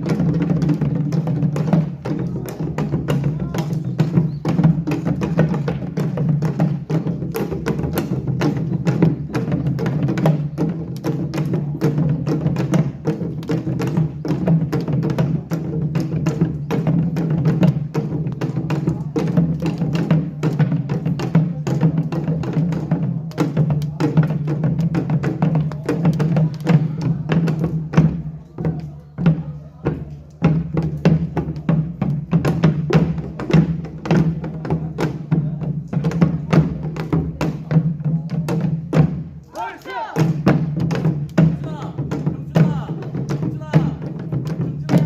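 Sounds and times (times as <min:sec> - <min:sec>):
drum and gong strikes: 0:40.1 - 0:45.0.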